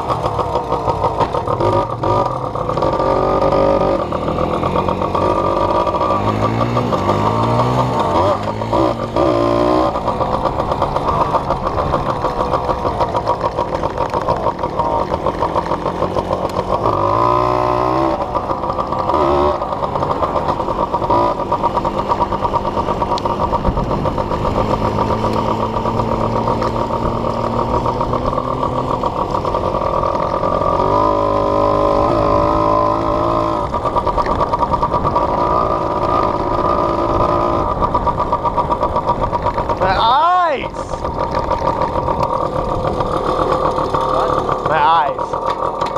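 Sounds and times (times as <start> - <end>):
small off-road engine revving: 0.0 - 45.9.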